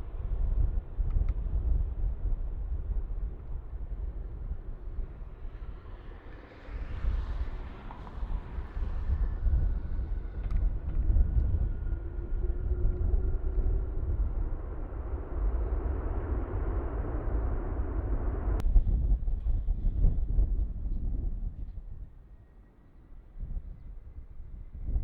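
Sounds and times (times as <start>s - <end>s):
jet engines rumbling: 0.0s - 18.6s
faint engine whine: 0.0s - 18.8s.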